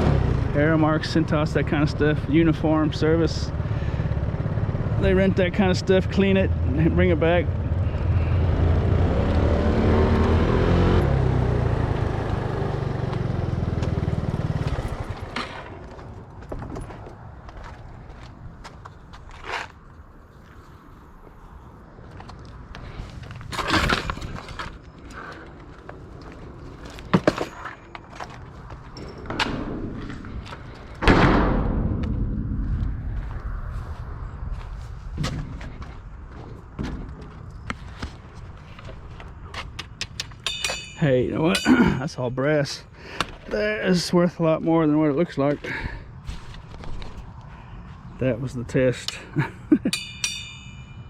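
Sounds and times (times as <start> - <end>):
loud crash: 31.0 - 35.8.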